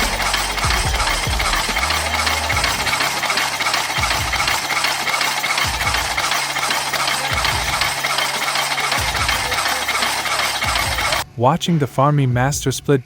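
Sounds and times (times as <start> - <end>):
deep thumps: 0.0 - 3.0
machine running loudly: 0.0 - 11.3.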